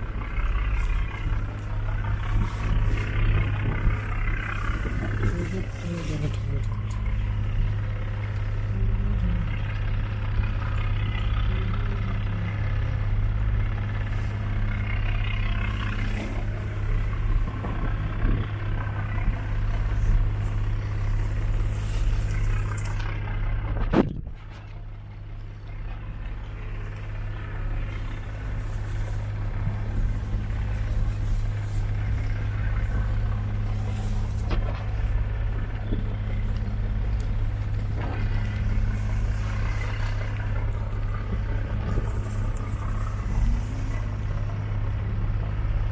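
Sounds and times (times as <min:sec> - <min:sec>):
boat engine humming: 0:00.0 - 0:45.9.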